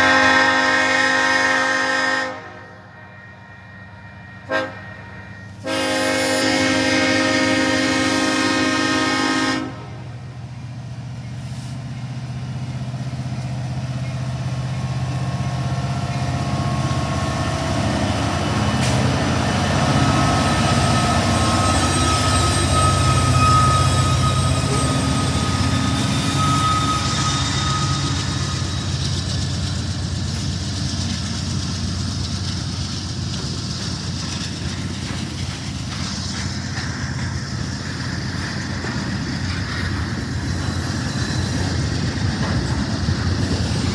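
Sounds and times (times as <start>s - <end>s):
freight train rumbling: 0.0s - 43.9s
thin high tone: 19.8s - 29.1s.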